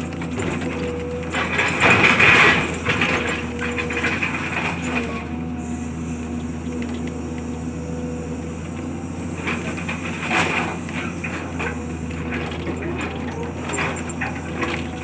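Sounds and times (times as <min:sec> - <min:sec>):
debris crunching and clattering: 0:00.0 - 0:05.6, 0:08.7 - 0:15.0
heavy machine engine running: 0:00.0 - 0:15.0.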